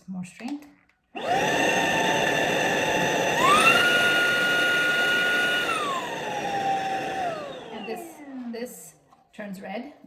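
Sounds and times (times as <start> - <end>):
stick vacuum motor whine: 1.2 - 8.5.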